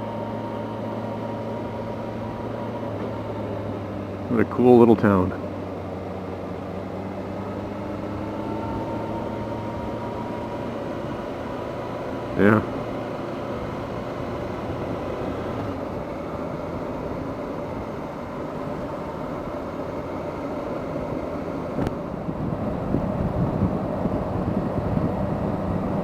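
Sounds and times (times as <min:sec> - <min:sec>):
motorcycle engine and road noise: 0:00.0 - 0:26.0
wind gusting on microphone: 0:21.0 - 0:26.0.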